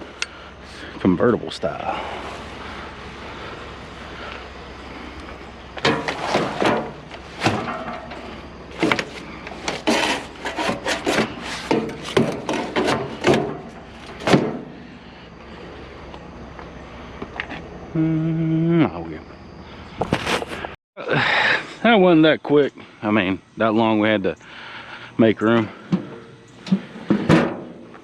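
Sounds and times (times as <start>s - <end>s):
scrap being shifted on a trailer: 1.9s - 15.0s, 25.7s - 27.9s.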